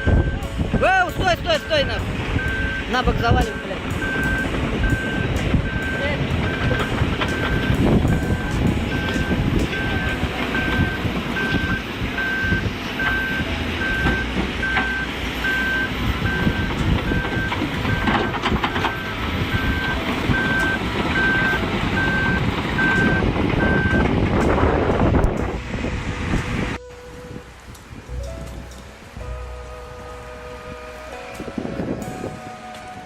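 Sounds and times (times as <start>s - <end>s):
reversing alarm beeping: 0.0s - 24.8s
diesel engine rumble: 0.0s - 33.0s.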